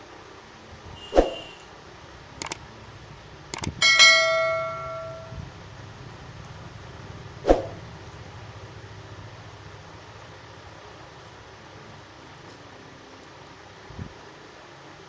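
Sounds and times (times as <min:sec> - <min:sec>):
dishes clinking: 0:03.8 - 0:05.3
metal plate ringing: 0:03.8 - 0:05.4.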